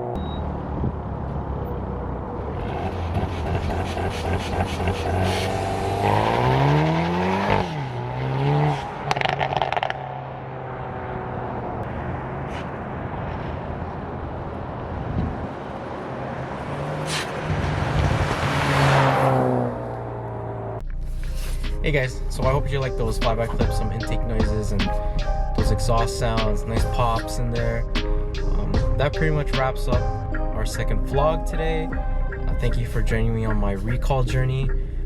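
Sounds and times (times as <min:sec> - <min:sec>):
car engine accelerating hard: 0:00.0 - 0:22.6
exhaust pops and crackles: 0:09.1 - 0:10.0.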